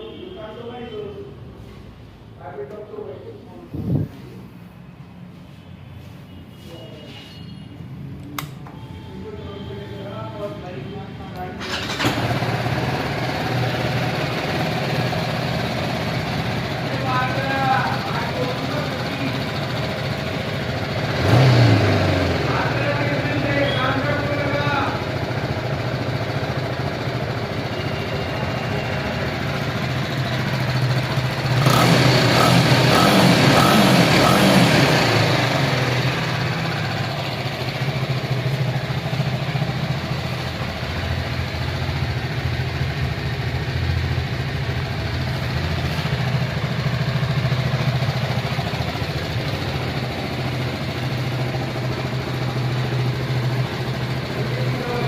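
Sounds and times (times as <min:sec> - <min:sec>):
motorcycle engine idling: 0:11.4 - 0:55.0.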